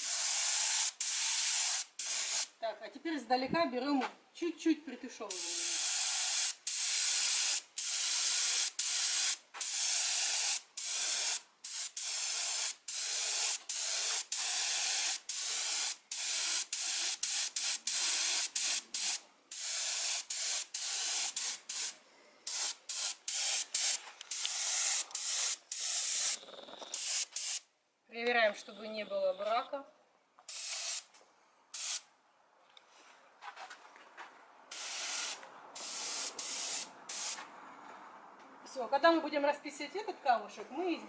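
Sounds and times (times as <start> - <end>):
spray paint hissing bursts: 0.0 - 2.5, 5.3 - 27.7, 30.5 - 31.1, 31.7 - 32.1, 34.7 - 37.4.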